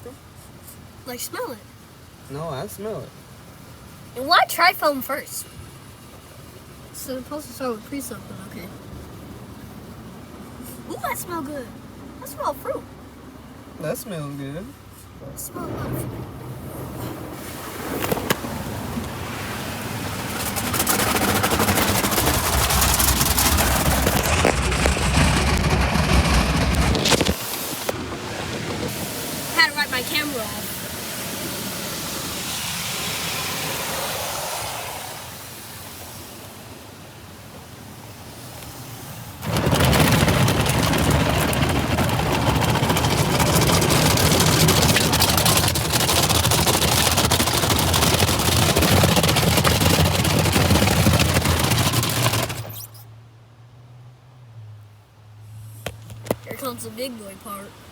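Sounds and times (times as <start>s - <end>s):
water jets spraying on car: 0.0s - 53.0s, 55.6s - 57.9s
low rumble: 15.2s - 29.6s
car idle hum: 36.0s - 52.7s.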